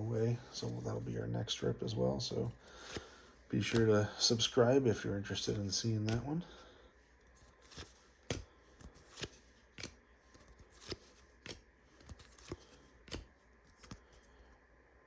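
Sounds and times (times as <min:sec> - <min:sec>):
trading cards snapping: 0:02.8 - 0:04.0, 0:05.4 - 0:06.3, 0:07.4 - 0:14.3.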